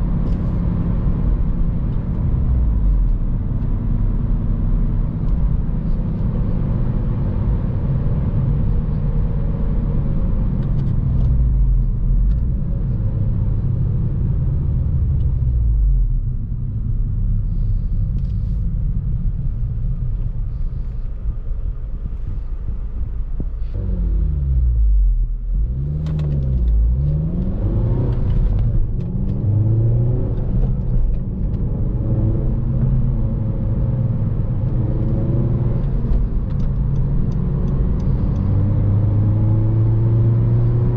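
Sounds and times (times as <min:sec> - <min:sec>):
road noise: 0:00.0 - 0:40.9
car engine revving: 0:23.7 - 0:40.9.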